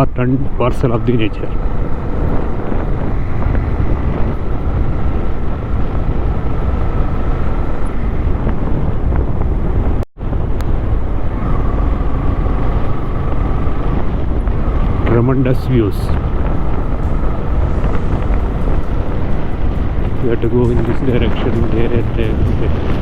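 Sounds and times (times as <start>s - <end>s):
dense rushing noise: 0.0s - 23.0s
motorcycle engine running: 0.0s - 23.0s.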